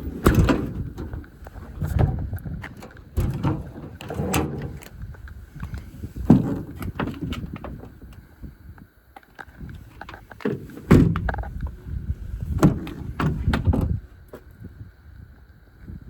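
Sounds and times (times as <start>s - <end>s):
metal drawer clunk: 0.0s - 1.2s, 2.0s - 4.9s
metal drawers sliding: 0.0s - 4.9s.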